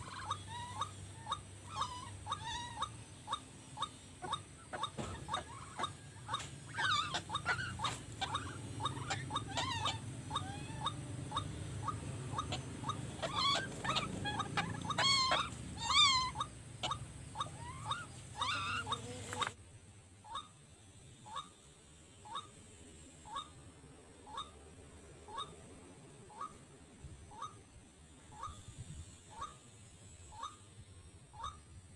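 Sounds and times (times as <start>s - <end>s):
waterhens calling: 4.2s - 19.5s.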